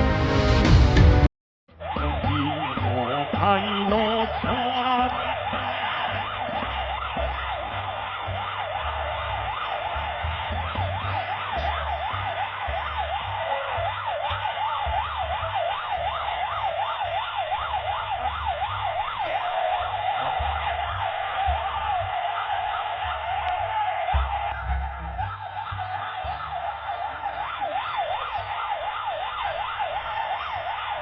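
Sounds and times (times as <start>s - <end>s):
emergency siren wailing: 1.7s - 31.0s.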